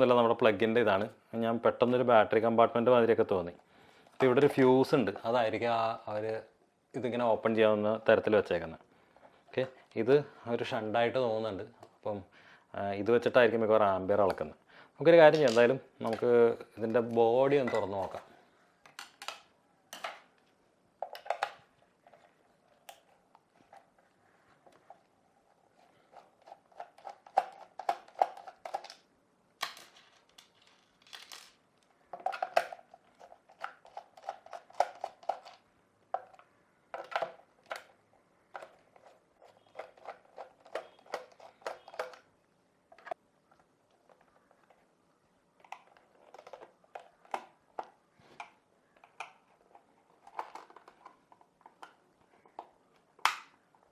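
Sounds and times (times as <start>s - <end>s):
plastic scrapes and creaks: 32.1s - 42.3s, 45.6s - 53.2s
plastic housing clicks: 39.5s - 42.3s.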